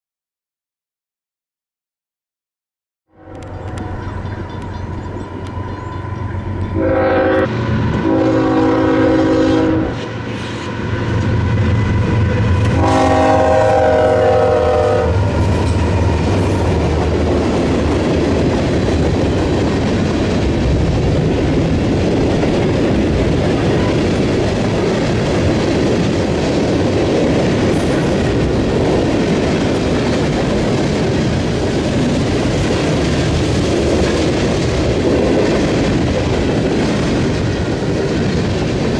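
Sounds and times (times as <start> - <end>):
train horn blasts: 3.1 - 17.2
locomotive engine rumble: 3.3 - 38.9
train cars clacking over rail joints: 3.4 - 8.1, 14.2 - 38.9.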